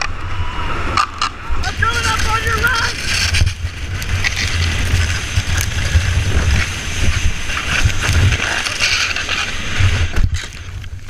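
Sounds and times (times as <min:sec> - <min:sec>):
wind buffeting microphone: 0:00.0 - 0:11.0
rushing water: 0:00.8 - 0:11.0.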